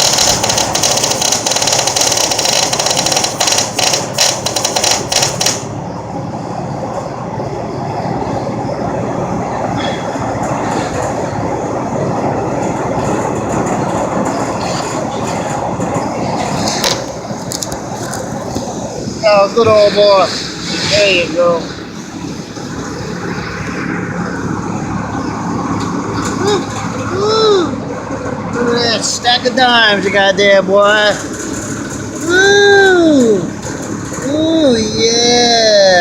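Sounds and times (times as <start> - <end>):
welder arc crackling and sizzling: 0.0 - 5.7
dull steady noise: 0.0 - 36.0.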